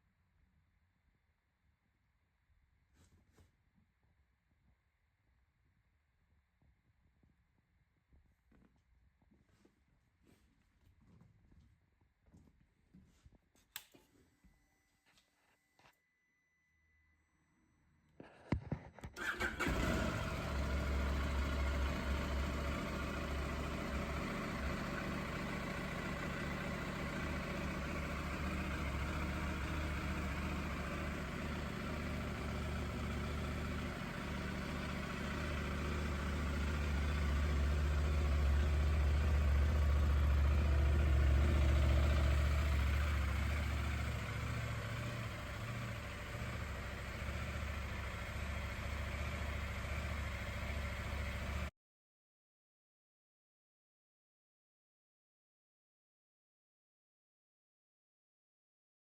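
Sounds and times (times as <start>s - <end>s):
motorcycle engine starting and idling: 19.2s - 51.7s.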